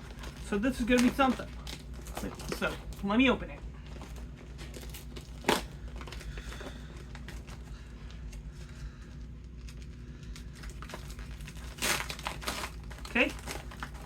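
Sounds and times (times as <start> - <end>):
plastic snack bag crinkling: 0.0 - 14.0
sharp crack of bag opening: 4.7 - 7.6, 10.6 - 14.0.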